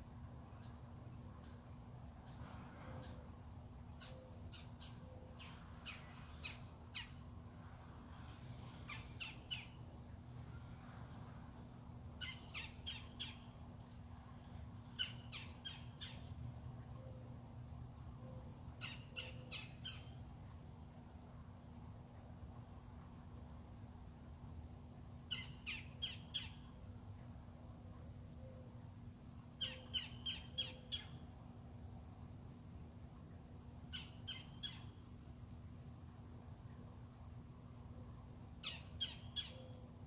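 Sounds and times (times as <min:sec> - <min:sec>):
steady low hum: 0:00.0 - 0:40.0
bird calls: 0:29.6 - 0:31.2, 0:38.6 - 0:39.9.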